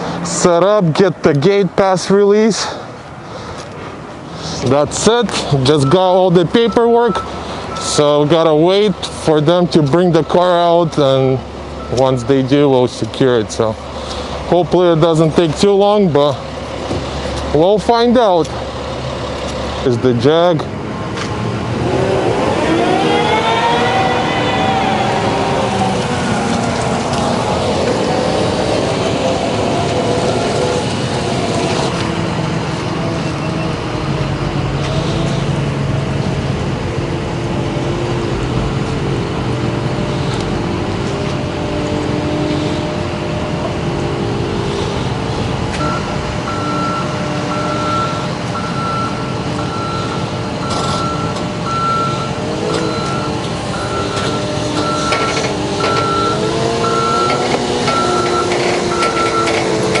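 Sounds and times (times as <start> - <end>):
heavy vehicle diesel engine: 0.0 - 60.0
reversing alarm beeping: 5.7 - 8.1, 9.6 - 12.6, 45.8 - 60.0.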